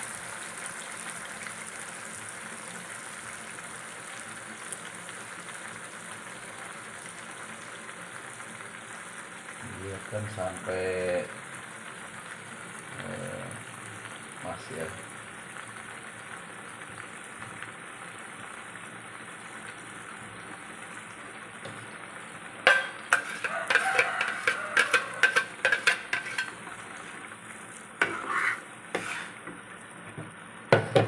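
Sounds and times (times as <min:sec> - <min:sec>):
spice paste sizzling in hot oil: 0:00.0 - 0:31.0
metal spatula scraping a pan: 0:22.6 - 0:29.6
paste poured into pan: 0:22.6 - 0:29.6.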